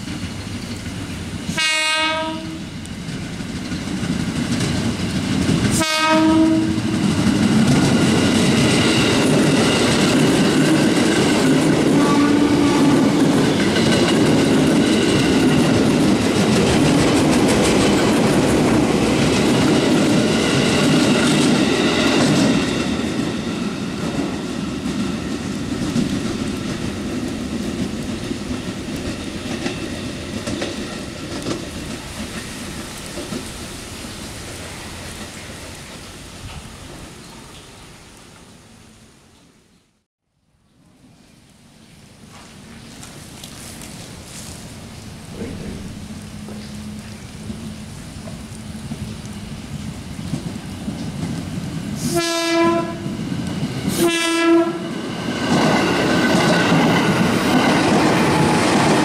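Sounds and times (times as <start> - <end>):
heavy rain hissing: 0.0 - 39.3, 41.2 - 54.1
train wheel and carriage noise: 0.0 - 39.7, 40.8 - 59.0
train horn blasts: 1.6 - 2.7, 5.8 - 7.0, 11.9 - 13.2, 52.0 - 53.2, 53.9 - 55.0.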